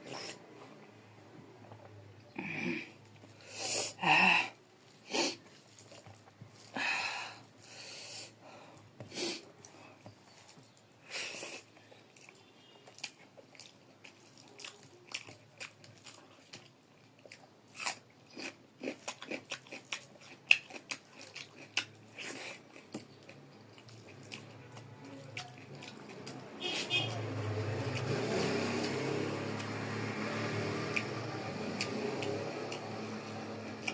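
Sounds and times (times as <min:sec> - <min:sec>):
chewing with wet mouth clicks: 0:11.6 - 0:26.9, 0:30.8 - 0:32.9, 0:33.7 - 0:33.9.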